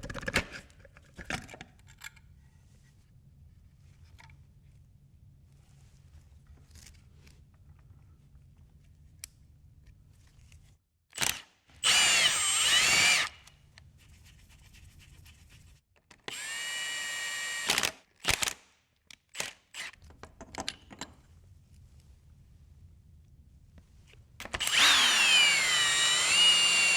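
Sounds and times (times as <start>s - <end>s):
power drill whining: 11.2s - 13.4s, 16.3s - 17.9s, 19.8s - 20.0s, 24.6s - 26.9s.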